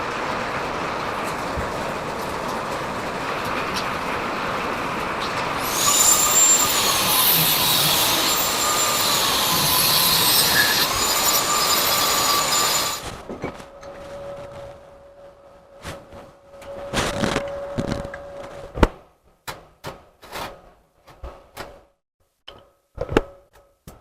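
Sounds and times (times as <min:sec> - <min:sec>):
machine hissing and whining: 0:05.6 - 0:13.1.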